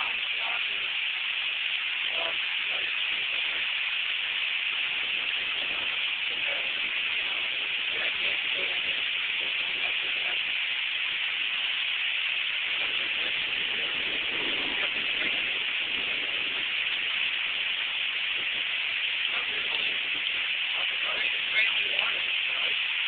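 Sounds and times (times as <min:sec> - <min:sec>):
heavy rain pouring: 0:00.0 - 0:23.0.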